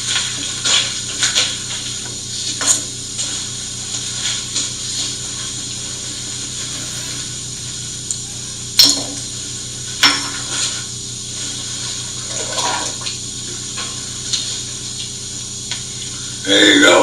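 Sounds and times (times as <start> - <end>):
magnetic drill motor hum: 4.6 - 12.2.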